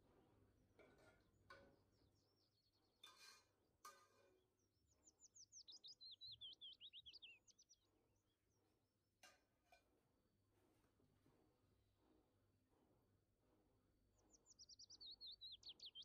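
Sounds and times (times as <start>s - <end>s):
faint birdsong: 0.3s - 9.6s, 12.5s - 16.0s.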